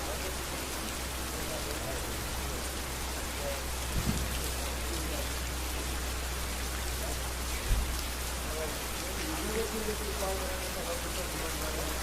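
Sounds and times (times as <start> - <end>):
rain on hard surfaces: 0.0 - 12.0
dull low thumps: 3.8 - 4.5.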